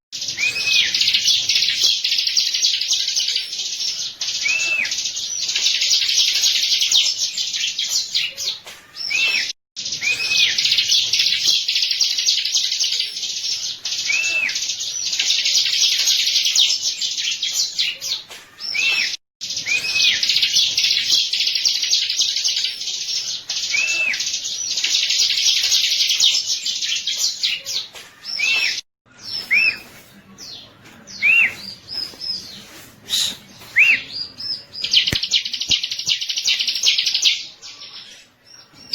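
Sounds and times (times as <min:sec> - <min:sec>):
bird scratchy chattering song: 0:00.2 - 0:38.9
bird whistled notes: 0:00.3 - 0:01.2, 0:09.0 - 0:10.9, 0:18.6 - 0:20.6, 0:29.4 - 0:29.9, 0:33.0 - 0:34.1.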